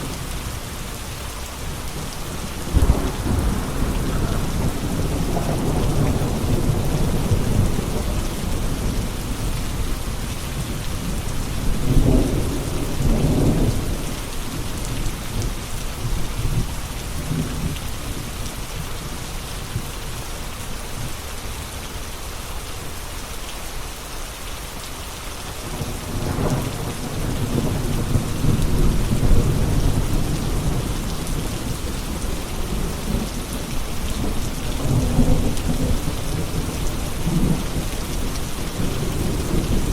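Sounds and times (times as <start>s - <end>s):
steady rain: 0.0s - 39.9s
rolling thunder: 2.0s - 18.3s, 25.7s - 39.9s.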